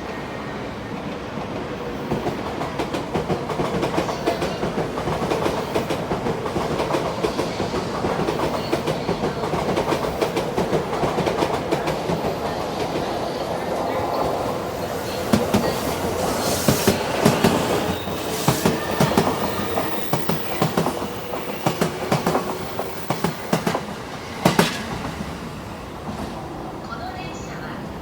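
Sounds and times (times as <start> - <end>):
train wheels clattering over rail joints: 15.2 - 25.4.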